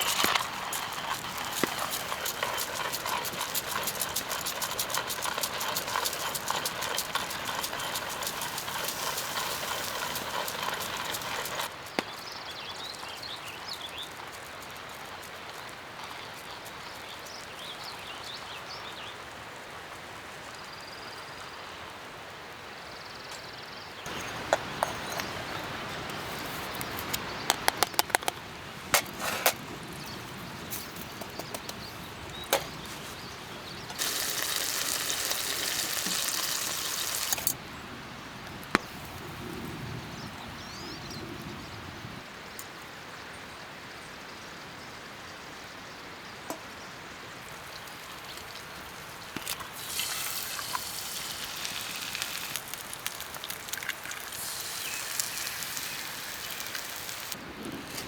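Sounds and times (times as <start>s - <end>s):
camp stove hissing: 0.0s - 12.0s, 24.1s - 37.6s, 47.4s - 58.0s.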